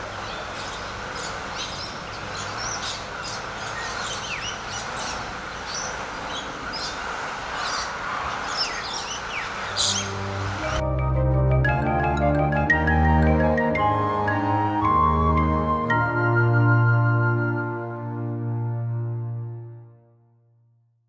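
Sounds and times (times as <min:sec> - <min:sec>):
birds chirping: 0:00.0 - 0:10.8
steady background hiss: 0:00.0 - 0:10.8.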